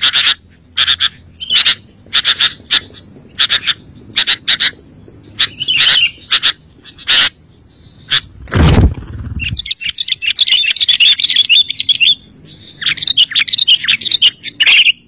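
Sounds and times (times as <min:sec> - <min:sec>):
bird chirping: 0:00.0 - 0:15.0
loud low thump: 0:08.4 - 0:09.6.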